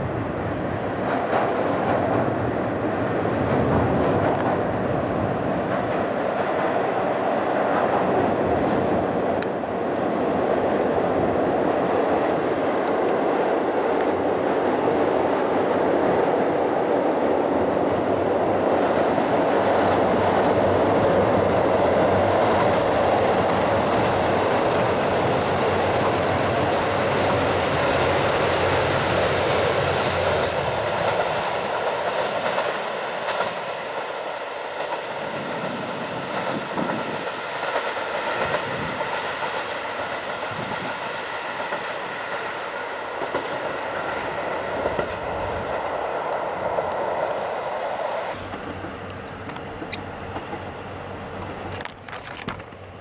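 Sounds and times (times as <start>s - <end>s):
wheels clacking over rail joints: 0.0s - 17.2s, 18.6s - 53.0s
diesel train passing: 0.0s - 53.0s.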